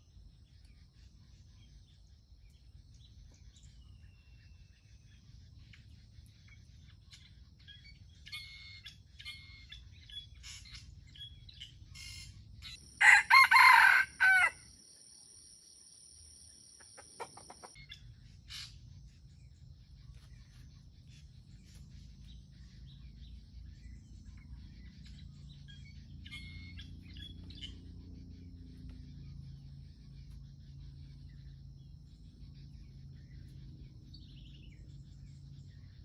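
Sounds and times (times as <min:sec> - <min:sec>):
small birds chirping: 0:00.0 - 0:36.0
rooster crowing: 0:13.0 - 0:14.7.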